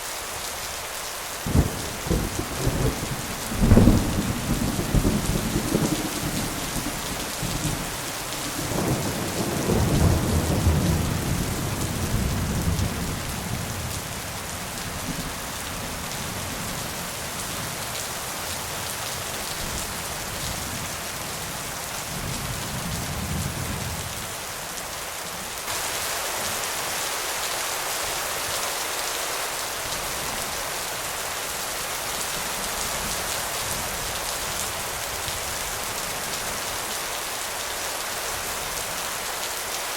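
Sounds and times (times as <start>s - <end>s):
steady rain hiss: 0.0s - 39.9s
rolling thunder: 1.5s - 7.9s.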